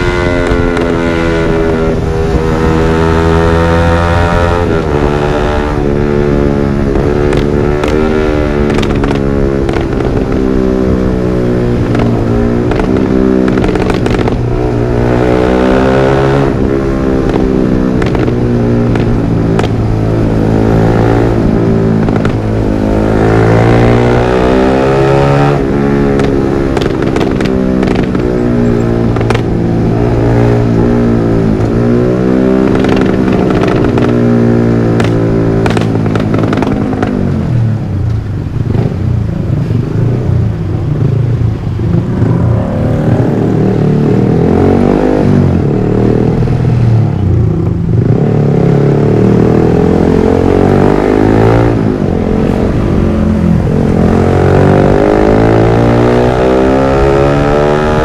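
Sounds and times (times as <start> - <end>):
exhaust pops and crackles: 0.0 - 1.2, 6.8 - 10.4, 11.6 - 14.5, 17.2 - 20.2, 20.9 - 22.6, 25.5 - 31.9, 32.6 - 37.5
motorcycle engine revving: 0.0 - 58.0.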